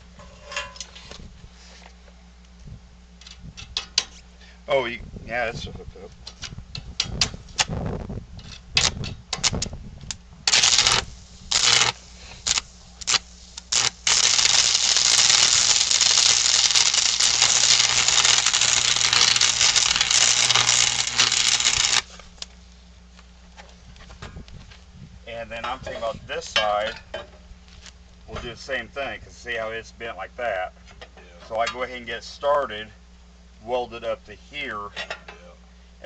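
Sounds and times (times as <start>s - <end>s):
low electrical hum: 0.0s - 36.0s
arc welding crackling: 8.7s - 22.7s.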